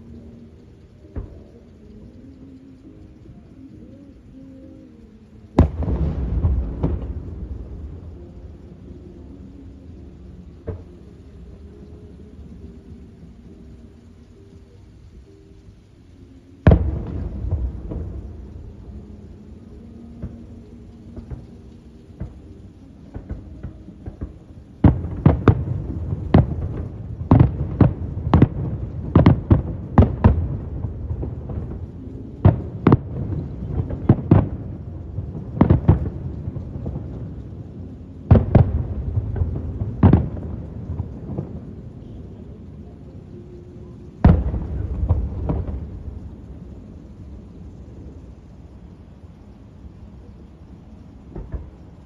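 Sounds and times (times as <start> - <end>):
faint fireworks pops: 0.0 - 52.0
fireworks booming bangs: 5.6 - 9.4, 16.6 - 42.5, 44.1 - 47.0, 51.2 - 52.0.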